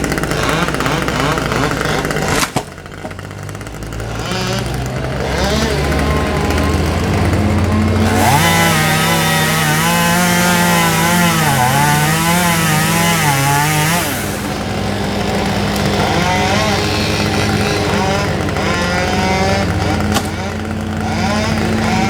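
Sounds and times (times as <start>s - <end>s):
chainsaw cutting wood: 0.0s - 22.0s
faint saw: 0.0s - 22.0s
steady engine hum: 0.0s - 22.0s.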